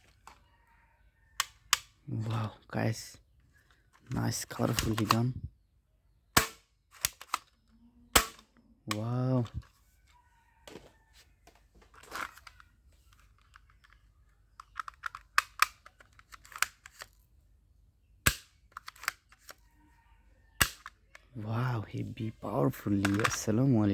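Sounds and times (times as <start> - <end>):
plastic toy clicks: 4.0 - 5.4, 6.4 - 7.6, 11.9 - 17.2, 18.3 - 19.6, 20.6 - 21.2, 22.8 - 23.9.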